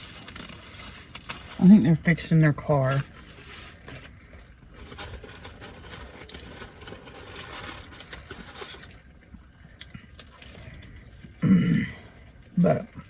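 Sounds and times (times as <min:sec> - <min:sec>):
chewing with crackles: 0:05.8 - 0:11.4.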